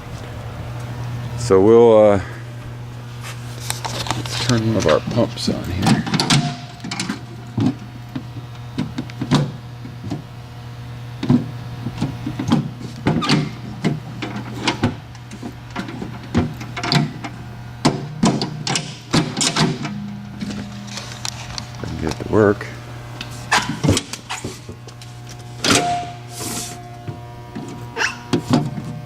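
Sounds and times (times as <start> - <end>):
electric water pump humming: 0.0 - 29.0.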